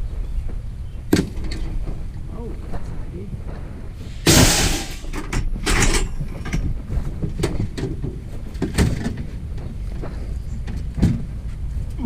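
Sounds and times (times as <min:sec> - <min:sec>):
low steady rumble: 0:00.0 - 0:12.0
heavy item clunking: 0:01.0 - 0:11.9
heavy item scraping: 0:01.4 - 0:10.6.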